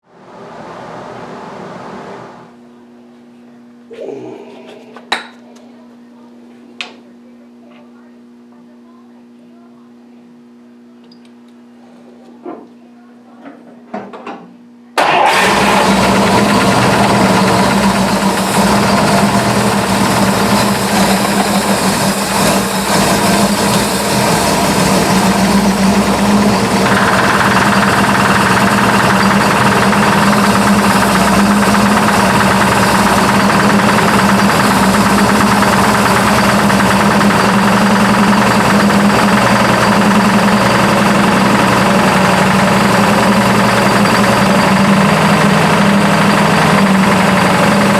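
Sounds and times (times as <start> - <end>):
car engine running: 15.0 - 47.9
engine knocking: 15.0 - 47.9.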